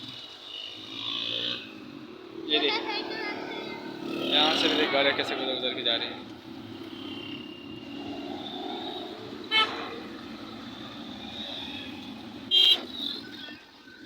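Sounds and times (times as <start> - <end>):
traffic passing: 0.0 - 14.0
vehicle horn tooting: 9.5 - 9.9, 12.5 - 12.9.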